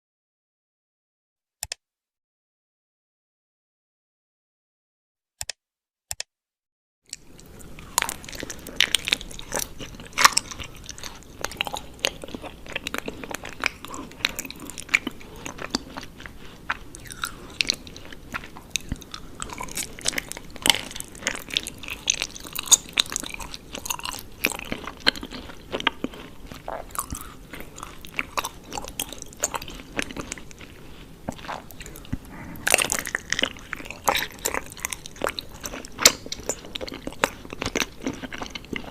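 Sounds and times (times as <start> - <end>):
chewing honeycomb: 7.1 - 38.9.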